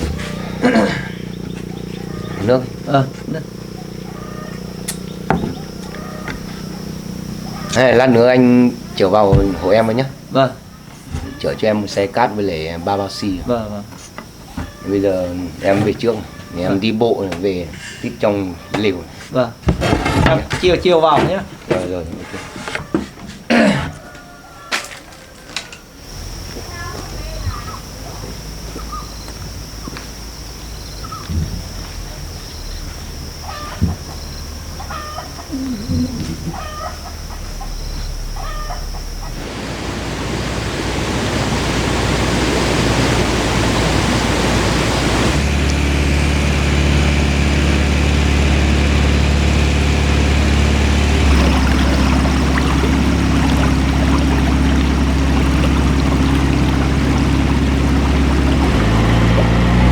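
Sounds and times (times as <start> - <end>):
steady high whine: 0.0 - 19.6, 26.0 - 59.9
engine running steadily: 0.0 - 23.9, 25.6 - 59.9
knocks: 5.3 - 6.5
loud even rushing noise: 39.3 - 48.2.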